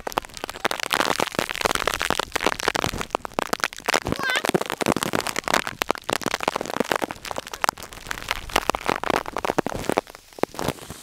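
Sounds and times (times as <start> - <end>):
heavy rain on plastic bag: 0.0 - 11.0.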